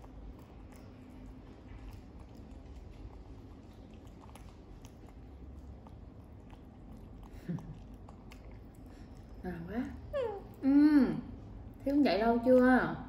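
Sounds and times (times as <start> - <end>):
quiet chewing: 0.0 - 10.7.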